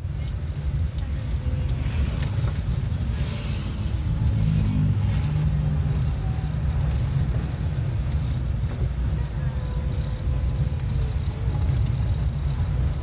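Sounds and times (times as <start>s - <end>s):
tyre noise on wet road: 0.0s - 13.0s
vehicle engine droning: 0.0s - 13.0s.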